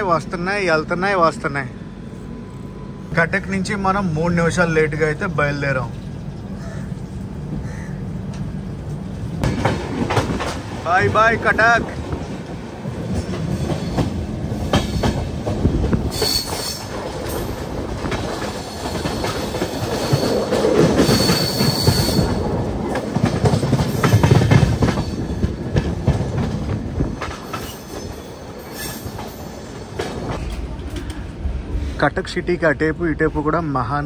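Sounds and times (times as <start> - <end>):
wheels clattering over rail joints: 9.4 - 31.2
high wheel squeals: 16.1 - 16.9, 18.6 - 22.4, 27.0 - 30.1.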